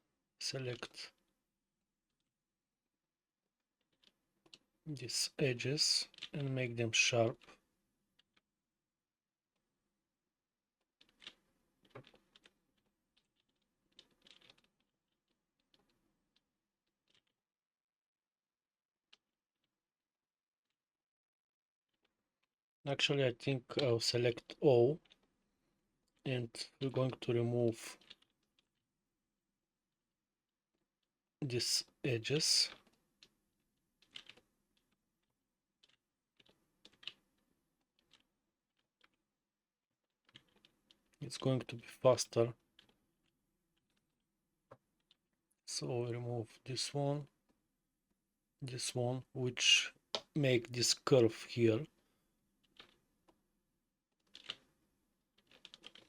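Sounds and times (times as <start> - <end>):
faint keyboard clicks: 55.4 - 56.0.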